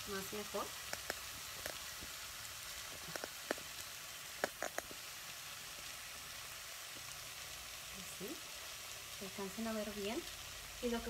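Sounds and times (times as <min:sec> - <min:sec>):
chicken sizzling in saucepan: 0:00.0 - 0:11.0
small pops: 0:00.8 - 0:02.2, 0:02.8 - 0:05.1.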